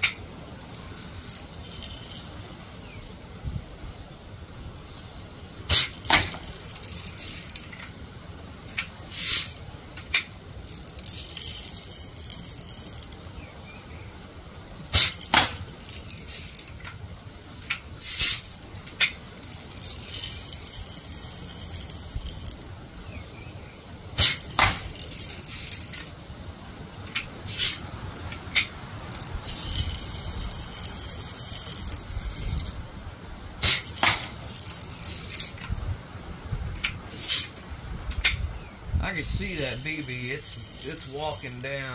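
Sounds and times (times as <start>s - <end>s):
high hissing: 9.0s - 9.6s, 18.0s - 18.7s.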